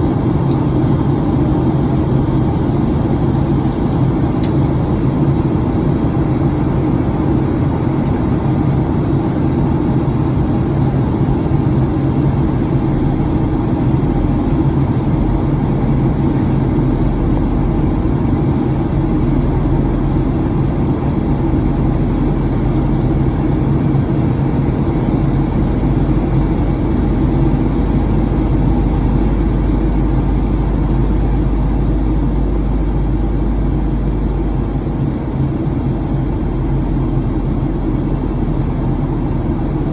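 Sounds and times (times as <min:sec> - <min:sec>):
airplane cabin drone: 0:00.0 - 0:39.9
deep low rumble: 0:11.2 - 0:39.9.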